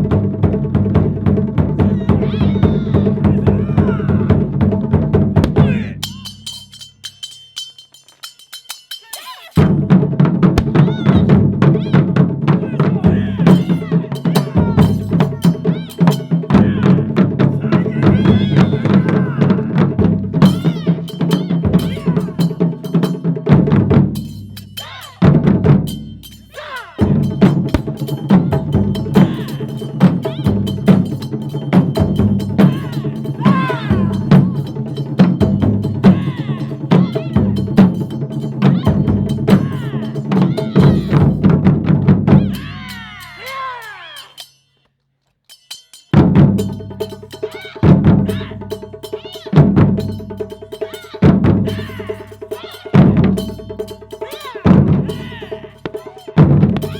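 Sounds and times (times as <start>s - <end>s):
taiko drums rapid strikes: 0.0s - 6.2s, 9.7s - 24.4s, 27.1s - 42.8s, 46.2s - 50.6s, 52.9s - 56.9s.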